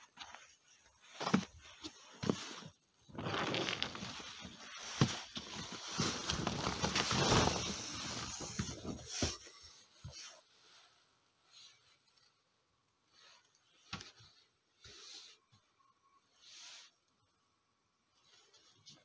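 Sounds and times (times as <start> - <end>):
footsteps crunching in snow: 0.0 - 9.1
clothing rustling: 0.0 - 12.4.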